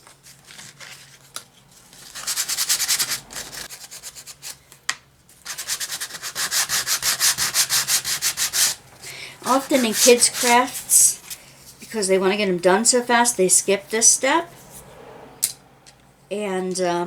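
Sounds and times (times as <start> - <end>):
sandpaper rubbing on wood: 2.0 - 4.4, 5.5 - 8.8, 9.4 - 11.3.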